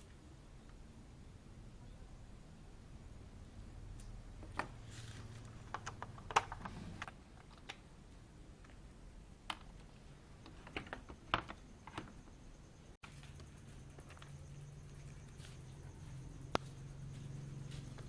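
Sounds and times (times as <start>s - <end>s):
faint low hum: 0.0s - 18.0s
small parts clicking and tapping: 5.3s - 7.9s, 8.6s - 12.4s.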